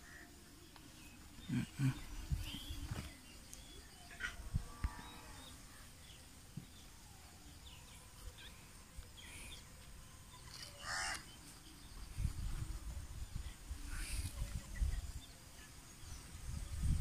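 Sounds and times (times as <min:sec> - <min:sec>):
bird cawing: 0:10.8 - 0:11.3.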